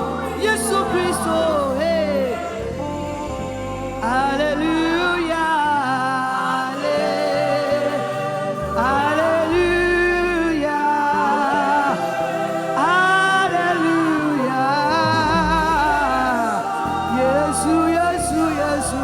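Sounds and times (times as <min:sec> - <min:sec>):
bass line: 0:00.0 - 0:05.5, 0:14.8 - 0:19.0
solo voice singing held notes: 0:00.0 - 0:19.0.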